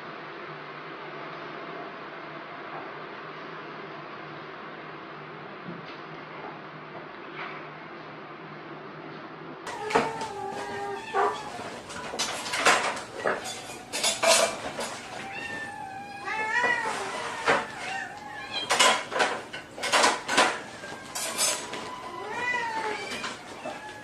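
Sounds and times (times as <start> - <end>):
cat meowing: 9.7 - 24.0.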